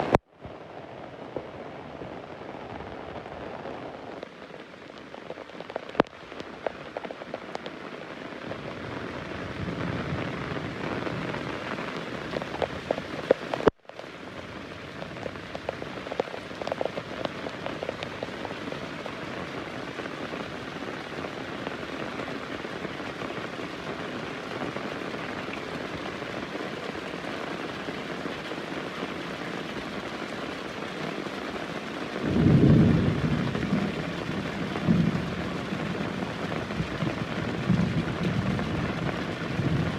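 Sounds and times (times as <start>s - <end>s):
heavy rain falling: 0.0s - 39.9s
raindrops hitting a surface: 0.0s - 39.9s
low rumble of thunder: 32.2s - 39.9s.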